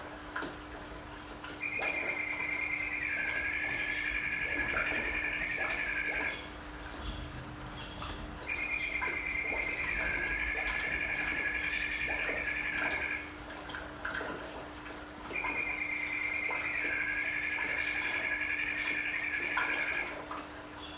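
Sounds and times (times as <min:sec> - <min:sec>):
faint steady hum: 0:00.0 - 0:20.9
water trickling and dripping: 0:00.0 - 0:20.9
warbling whistle-like trill: 0:01.6 - 0:06.5, 0:08.4 - 0:13.3, 0:15.3 - 0:20.2.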